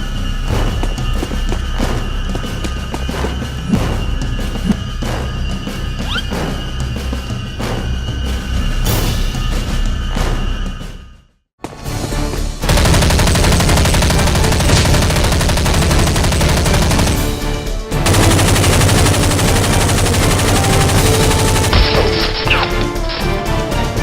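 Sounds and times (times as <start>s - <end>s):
background music: 0.0s - 24.0s
automatic gunfire bursts: 12.7s - 17.4s, 18.0s - 22.8s.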